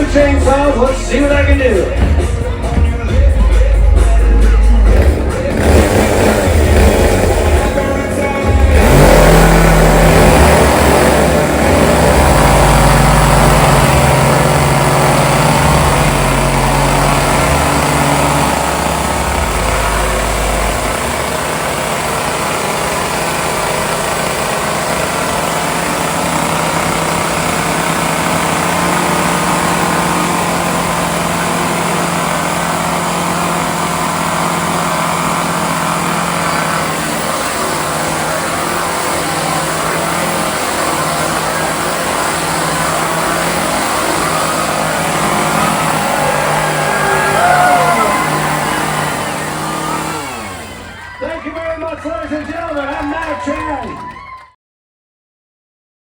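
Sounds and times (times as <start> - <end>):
chainsaws idling: 0.0 - 53.9.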